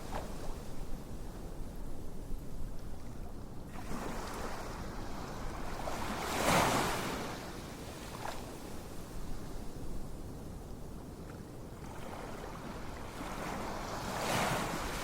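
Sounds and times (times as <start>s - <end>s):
ocean waves washing on shore: 3.6s - 9.8s, 11.7s - 15.0s.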